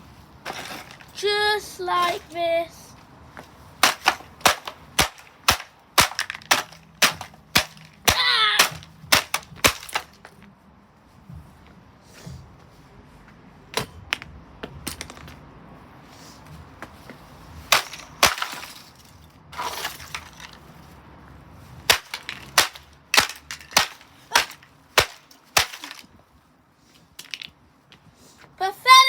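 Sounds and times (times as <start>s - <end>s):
plastic cracking and crunching: 3.8s - 10.2s.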